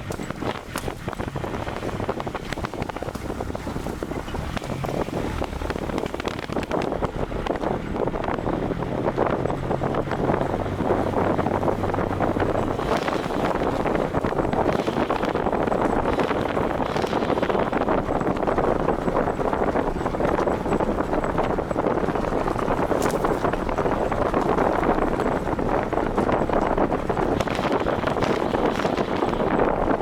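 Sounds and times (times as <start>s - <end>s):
vehicle driving at speed: 0.0s - 30.0s
wind buffeting microphone: 0.0s - 30.0s.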